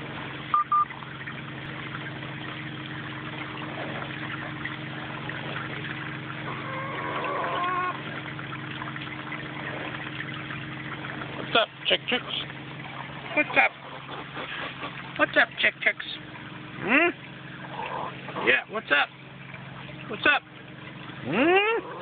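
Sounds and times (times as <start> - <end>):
chick warbling call: 6.5 - 8.0.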